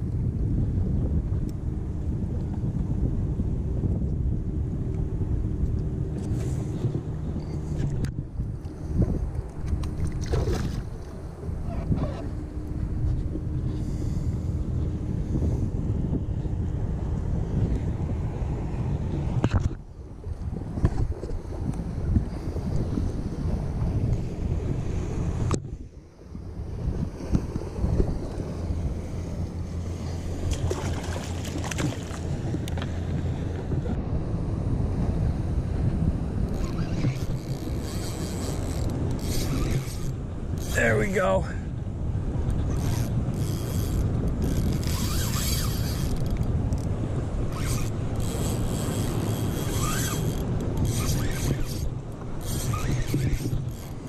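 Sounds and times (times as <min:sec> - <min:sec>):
wind buffeting microphone: 0:00.0 - 0:54.0
water lapping: 0:08.6 - 0:14.6, 0:20.7 - 0:34.0, 0:36.5 - 0:54.0
fishing reel buzzing: 0:36.6 - 0:40.8, 0:42.7 - 0:46.5, 0:47.5 - 0:54.0.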